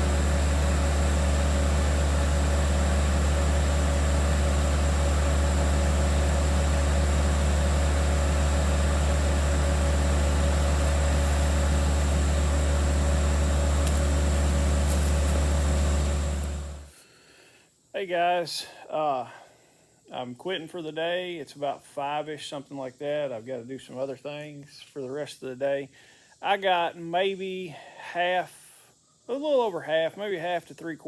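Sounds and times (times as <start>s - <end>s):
diesel engine droning: 0.0s - 16.9s.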